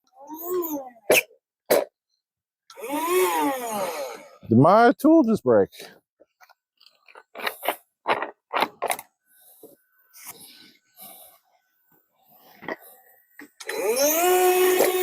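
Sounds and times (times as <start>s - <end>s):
power tool scraping and rattling: 12.4s - 15.0s.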